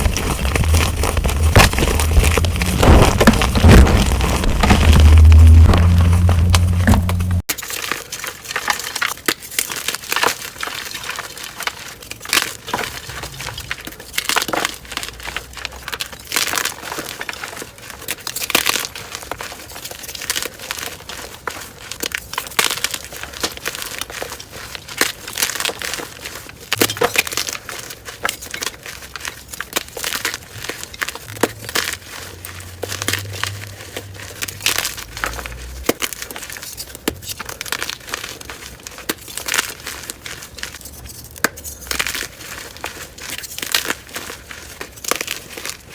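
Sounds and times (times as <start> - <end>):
chalk crushing and crunching: 0.0 - 7.5, 16.4 - 45.9.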